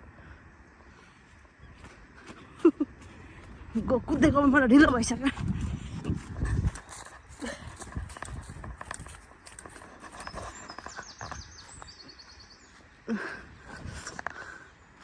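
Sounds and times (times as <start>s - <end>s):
footsteps crunching on forest path: 1.2s - 13.0s.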